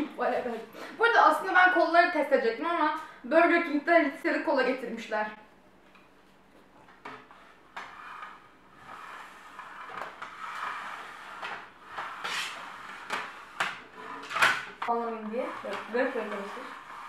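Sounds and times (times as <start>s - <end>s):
boxes rustling and scraping: 6.3s - 17.0s.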